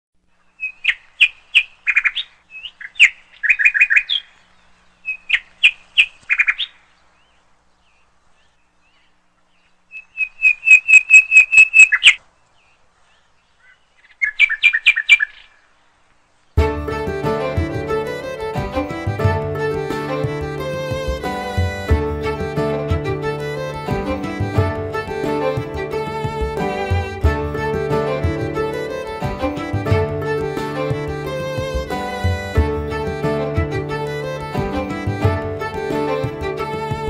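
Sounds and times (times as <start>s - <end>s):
bird chirping sharply: 0.4s - 12.8s, 13.5s - 15.7s.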